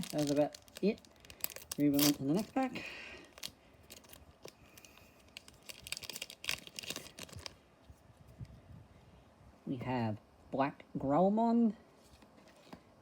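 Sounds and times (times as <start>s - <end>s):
foil pack crinkling and tearing: 0.0s - 7.6s.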